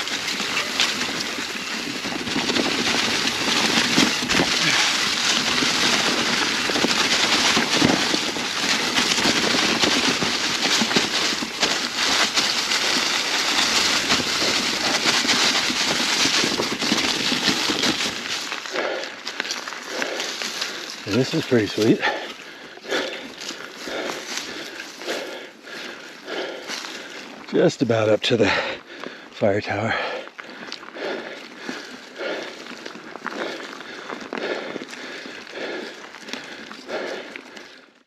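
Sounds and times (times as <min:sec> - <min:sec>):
bike tyres crunching dry leaves: 0:00.0 - 0:38.0.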